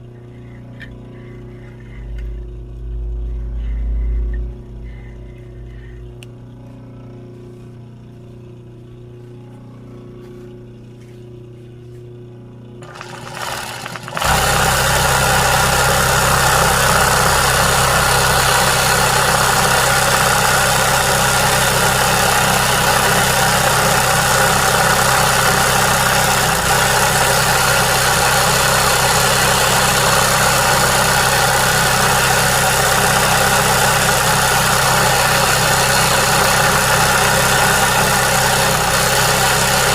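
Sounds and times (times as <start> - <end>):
faint low hum: 0.0 - 12.8
electric sewing machine running: 12.8 - 39.9.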